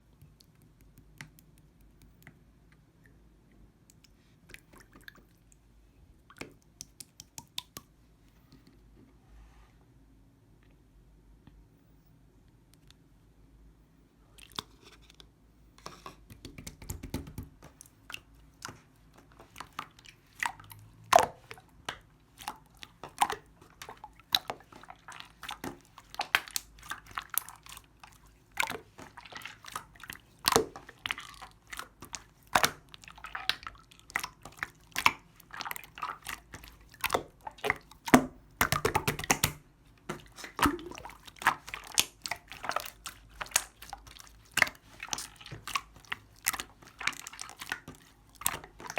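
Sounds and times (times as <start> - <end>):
wet slime clicks and pops: 6.4 - 7.9, 37.1 - 42.4.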